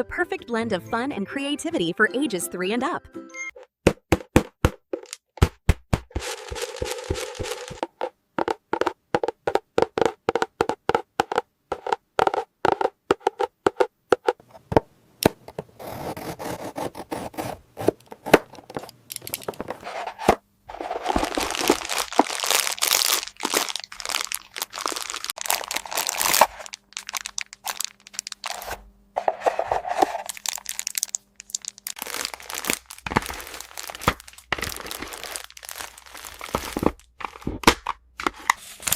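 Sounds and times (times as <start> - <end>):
plastic wrapping crinkling and tearing: 6.1 - 7.8, 18.7 - 19.8, 20.7 - 28.8, 29.9 - 38.9.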